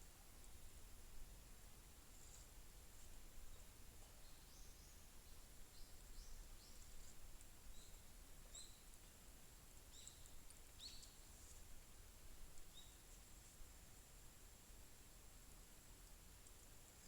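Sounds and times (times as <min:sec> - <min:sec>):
small bird chirps: 0:09.9 - 0:11.2.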